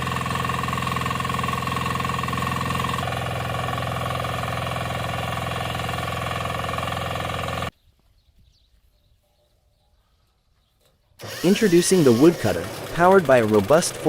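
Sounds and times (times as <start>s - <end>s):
small engine pulsing: 0.0s - 7.7s, 11.2s - 14.0s.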